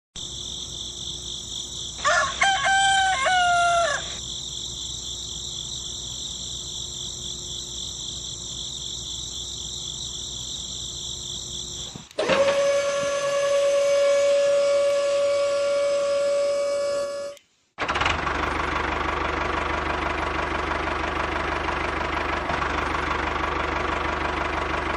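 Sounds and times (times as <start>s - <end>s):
insects chirring: 0.2s - 17.6s
rooster crowing: 2.0s - 4.2s, 12.3s - 17.4s
loud steady hum: 11.9s - 17.5s.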